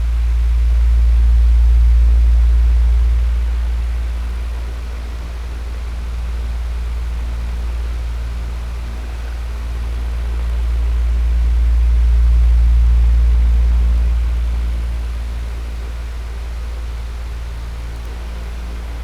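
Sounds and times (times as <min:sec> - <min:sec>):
electric fan humming: 0:00.0 - 0:19.0.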